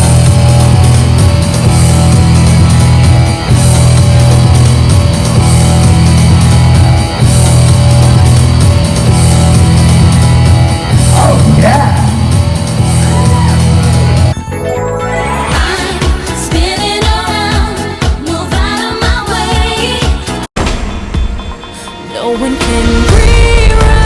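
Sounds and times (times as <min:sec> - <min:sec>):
loud rock music: 0:00.0 - 0:24.0
voice gliding in pitch: 0:11.1 - 0:13.8.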